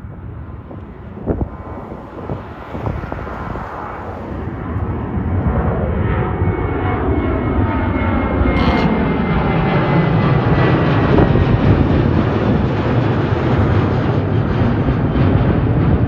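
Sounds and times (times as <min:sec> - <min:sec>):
jet airliner engine rumbling hiss: 0:00.0 - 0:16.0.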